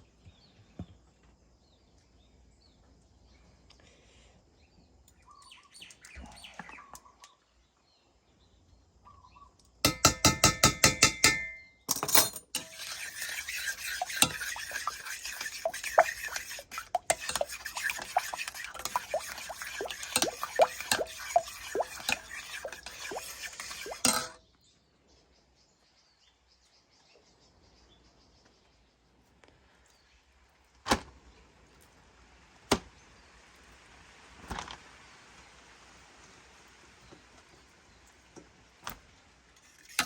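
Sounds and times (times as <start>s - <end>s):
utensils clattering against a pan: 9.9s - 24.4s, 39.6s - 40.0s.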